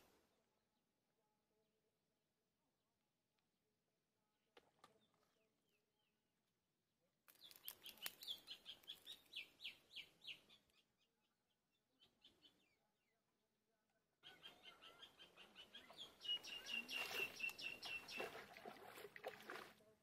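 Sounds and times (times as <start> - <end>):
bird chirps: 7.3 - 11.1, 14.2 - 18.5.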